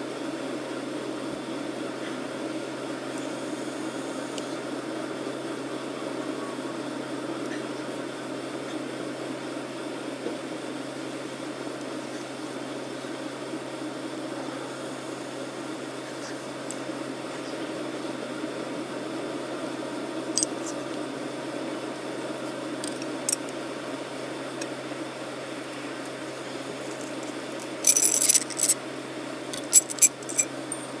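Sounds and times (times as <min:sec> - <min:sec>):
fan whirring: 0:19.2 - 0:31.0
constant low hum: 0:20.2 - 0:31.0
ringing clicks and clinks: 0:26.9 - 0:28.8, 0:29.5 - 0:31.0.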